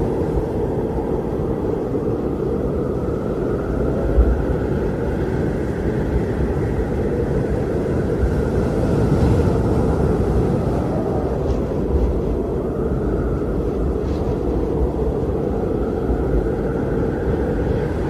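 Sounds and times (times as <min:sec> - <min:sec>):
faint high wind whistle: 0:00.0 - 0:18.0
strong wind rumbling: 0:00.0 - 0:18.0.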